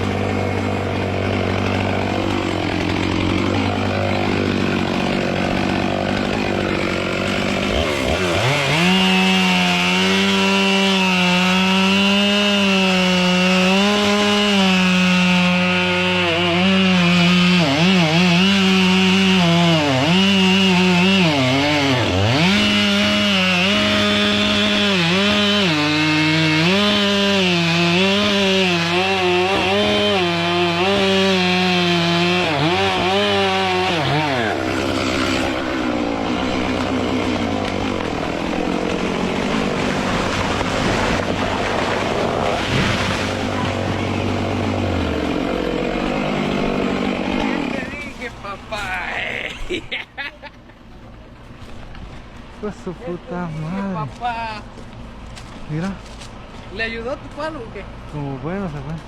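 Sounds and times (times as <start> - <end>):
chainsaw cutting wood: 0.0 - 50.0.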